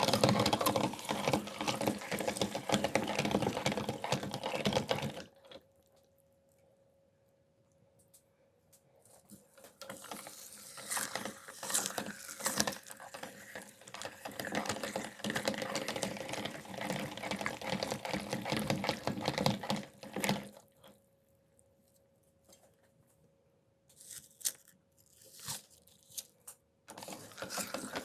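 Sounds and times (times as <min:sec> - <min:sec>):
meat grinder pulping watermelon: 0:00.0 - 0:05.6, 0:09.8 - 0:20.7, 0:26.9 - 0:28.0.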